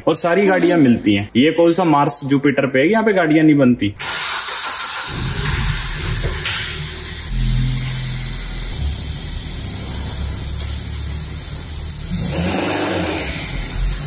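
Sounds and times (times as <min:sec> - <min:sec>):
car engine running: 0:05.2 - 0:14.0.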